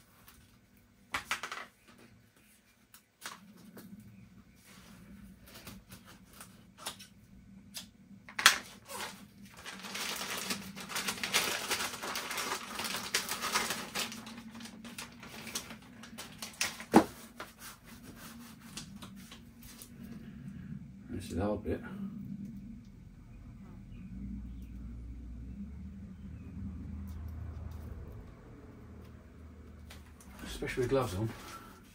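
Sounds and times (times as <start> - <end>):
crackly rustling of sticky tape: 4.7 - 20.3.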